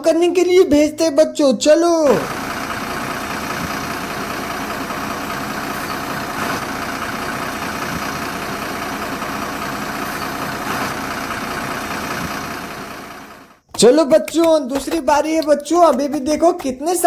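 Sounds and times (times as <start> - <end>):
truck engine running: 2.3 - 13.9.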